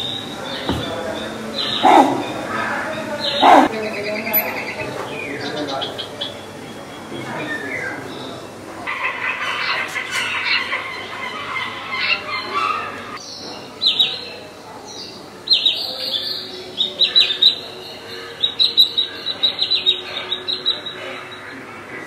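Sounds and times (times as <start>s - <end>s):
bird chirping: 0.0s - 21.7s.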